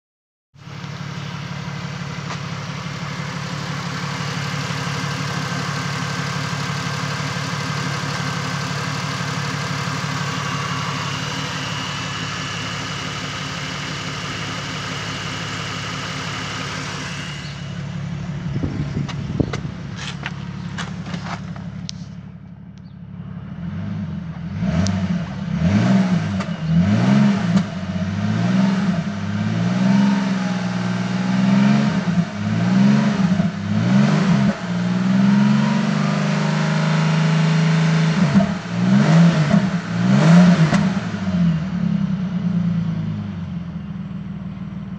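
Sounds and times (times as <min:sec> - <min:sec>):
car engine idling and revving: 0:00.6 - 0:44.9
engine knocks: 0:17.9 - 0:23.0.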